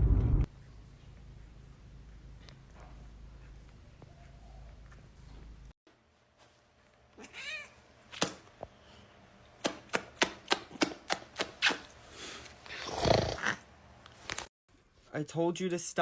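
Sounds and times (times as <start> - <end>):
cat meowing: 7.2 - 7.8.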